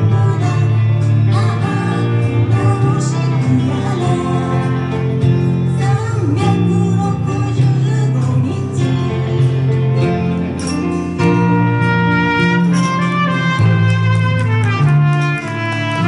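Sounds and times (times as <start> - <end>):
guitar: 0.0 - 16.0
person singing pop song: 0.0 - 16.0
band accompaniment: 8.7 - 16.0.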